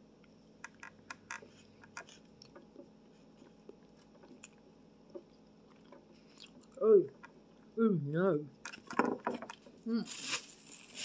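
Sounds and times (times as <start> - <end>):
person chewing with mouth clicks: 5.2 - 7.7.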